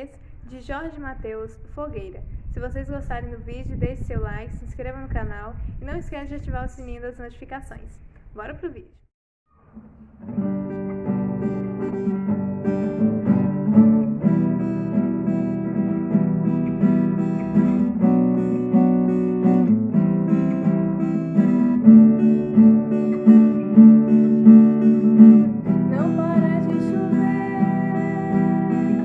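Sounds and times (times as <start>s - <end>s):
acoustic guitar strumming: 9.5s - 29.0s
person singing: 25.7s - 29.0s.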